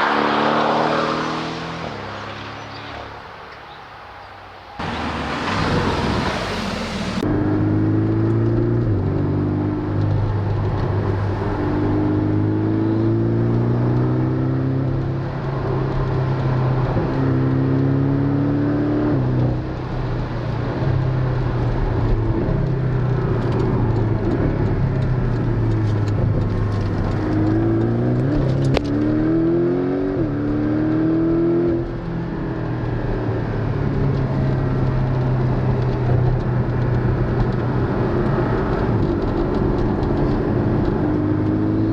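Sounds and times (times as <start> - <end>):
car engine accelerating: 0.0 - 41.9.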